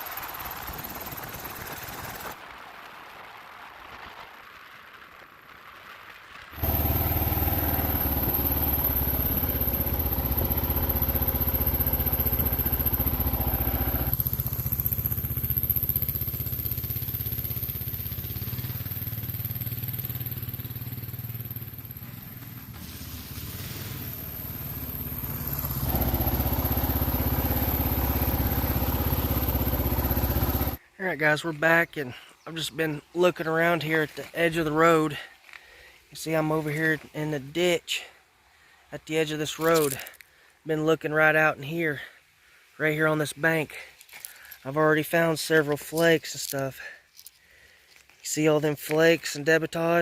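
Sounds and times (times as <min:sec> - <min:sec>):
motorcycle engine running: 0:00.0 - 0:02.4, 0:06.6 - 0:30.8.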